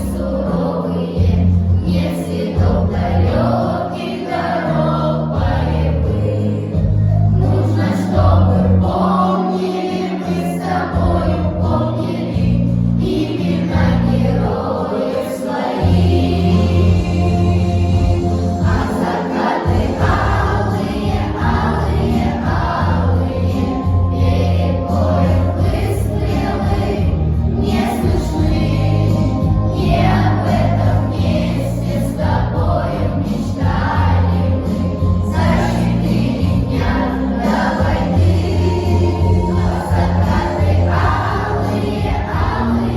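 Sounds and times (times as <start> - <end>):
children's choir singing: 0.0 - 42.9
instrumental accompaniment: 6.8 - 32.3.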